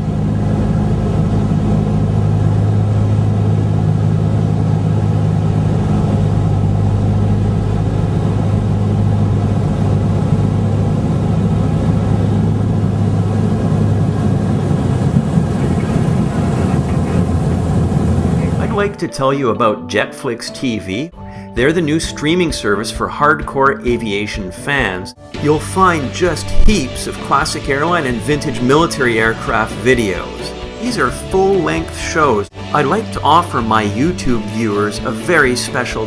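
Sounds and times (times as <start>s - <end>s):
piston aircraft engines droning: 0.0s - 36.0s.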